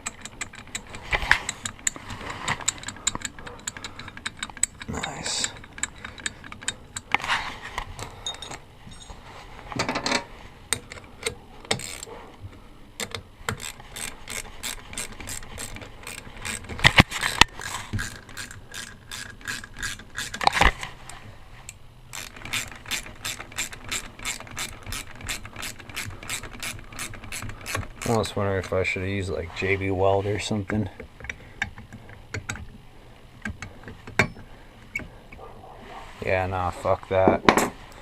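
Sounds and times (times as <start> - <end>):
ratchet wrench clicking: 0.0 - 7.2, 10.7 - 12.1, 13.0 - 20.7, 22.1 - 28.8.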